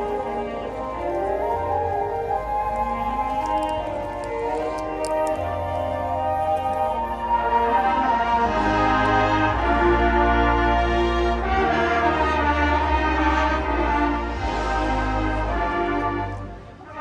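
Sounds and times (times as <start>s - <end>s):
low bass notes: 0.0s - 17.0s
marching band brass chords: 0.0s - 17.0s.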